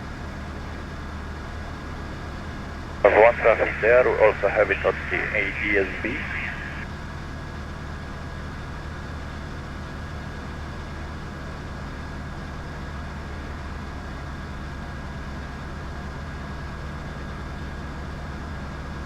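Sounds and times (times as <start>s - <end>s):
faint high whine: 3.1s - 6.8s
propeller plane engine droning: 3.1s - 6.8s.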